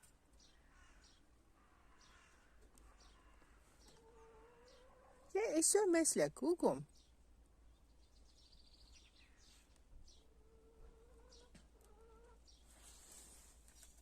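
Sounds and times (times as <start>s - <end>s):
chickens calling: 0.4s - 5.6s, 8.9s - 13.9s.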